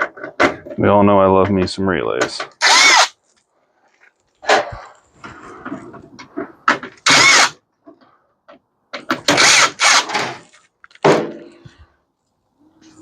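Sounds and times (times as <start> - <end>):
power drill running: 2.6 - 3.1, 7.1 - 7.5, 9.4 - 10.2.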